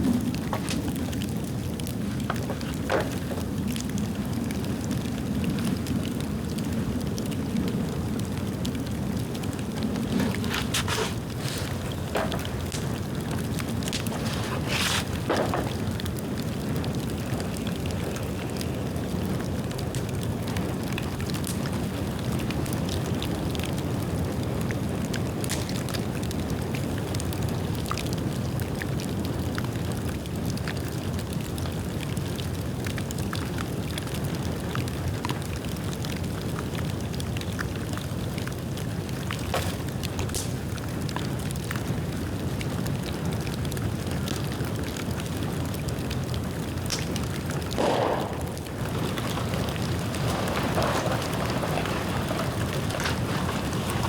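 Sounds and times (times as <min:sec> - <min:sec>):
fire crackling and popping: 0:00.0 - 0:54.0
low rush of flame: 0:45.3 - 0:54.0.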